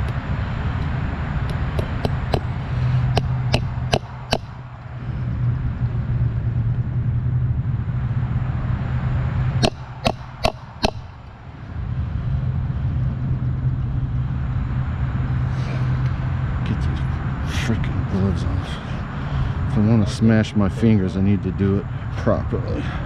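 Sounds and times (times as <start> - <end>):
low drone: 0.0 - 23.0
hammer striking: 3.1 - 4.6, 9.6 - 11.1.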